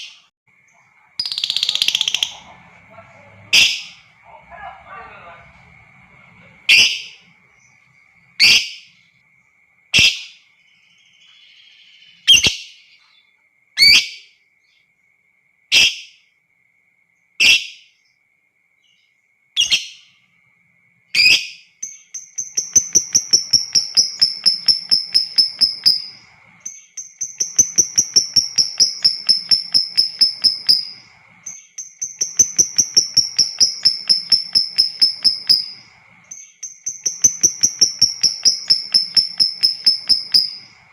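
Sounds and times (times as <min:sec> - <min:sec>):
lovebird shrieking and chattering: 0:01.2 - 0:02.4, 0:22.6 - 0:26.4, 0:27.2 - 0:36.0, 0:36.9 - 0:40.8
faint high whistle: 0:22.6 - 0:26.5, 0:37.1 - 0:40.9.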